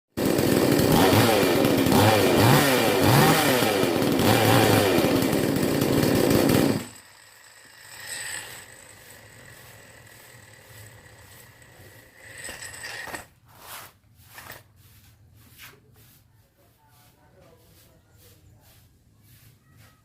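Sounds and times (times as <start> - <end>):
chainsaw engine revving: 0.2 - 12.5.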